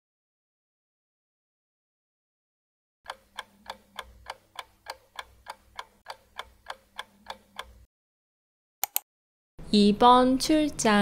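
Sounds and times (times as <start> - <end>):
clock ticking: 3.1 - 7.9.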